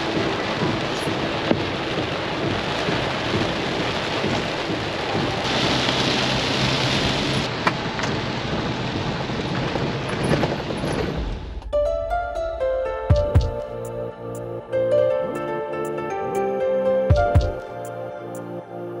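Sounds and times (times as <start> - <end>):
heavy rain on car windshield: 0.0 - 11.6.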